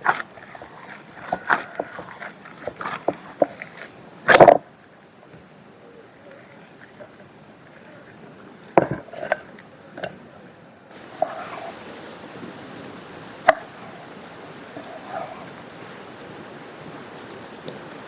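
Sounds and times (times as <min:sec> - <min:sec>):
high insect chirring: 0:00.0 - 0:12.2.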